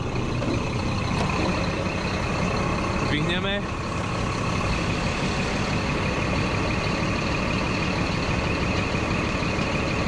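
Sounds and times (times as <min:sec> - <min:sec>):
truck diesel engine running: 0:00.0 - 0:10.0.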